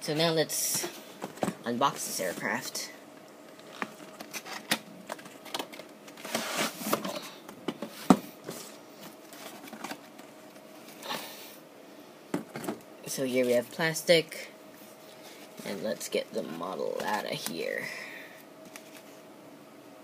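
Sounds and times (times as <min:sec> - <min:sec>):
packaging rustling: 0:08.4 - 0:11.0, 0:18.6 - 0:19.2.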